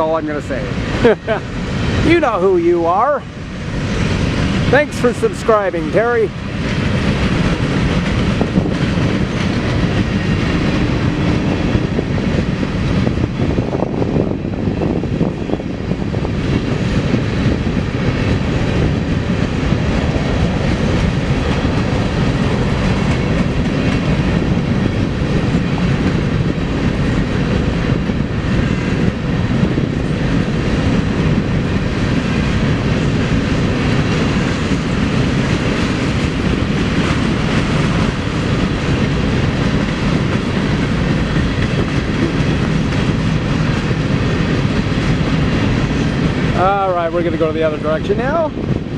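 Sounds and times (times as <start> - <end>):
freight train wheels rolling: 0.0 - 48.9.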